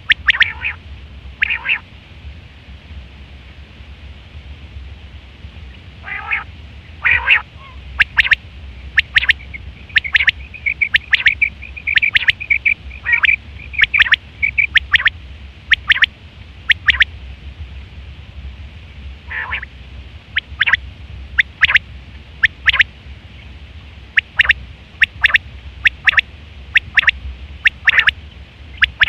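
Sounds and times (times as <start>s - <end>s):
quail calling: 0.0s - 0.8s, 1.4s - 1.8s, 6.0s - 16.1s, 16.7s - 17.1s, 19.3s - 19.7s, 20.4s - 20.8s, 21.4s - 21.8s, 22.4s - 22.9s, 24.2s - 29.0s
low hum: 0.0s - 29.0s.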